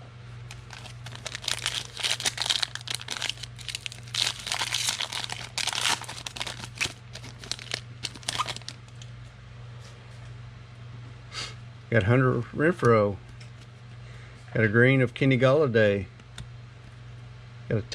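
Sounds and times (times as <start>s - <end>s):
wrapper tearing and crinkling: 0.5s - 9.0s.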